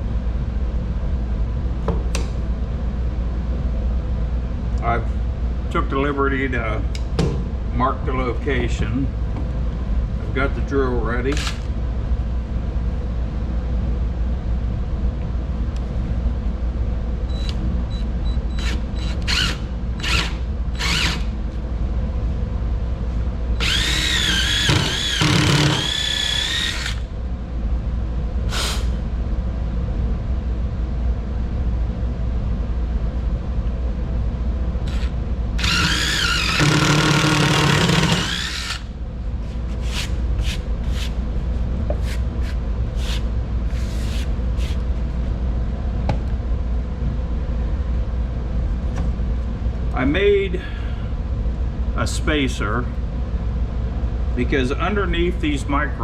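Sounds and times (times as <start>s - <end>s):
steady low hum: 0.0s - 56.0s
electric drill boring into wood: 18.6s - 21.3s, 23.6s - 27.0s, 28.5s - 28.9s, 34.9s - 38.9s
drill trigger blips: 23.6s - 27.0s, 34.9s - 38.8s.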